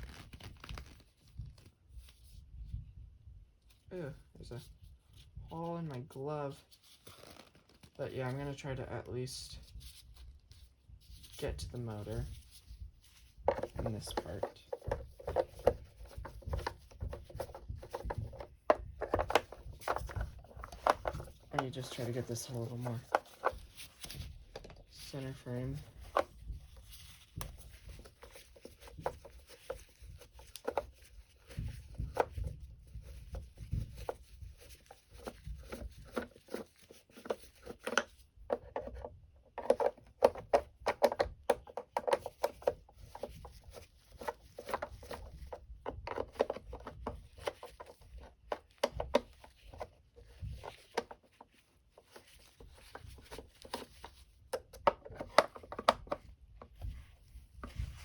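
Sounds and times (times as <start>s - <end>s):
clicks and knocks of vacuum parts: 13.4s - 58.0s.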